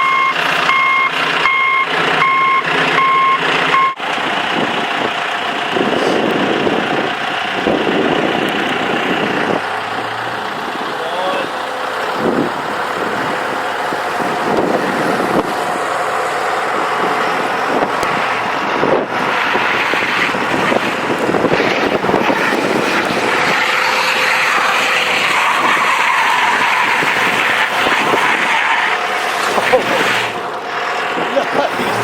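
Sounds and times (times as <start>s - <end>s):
vehicle engine running hard: 0.0s - 32.0s
rushing noise: 7.6s - 32.0s.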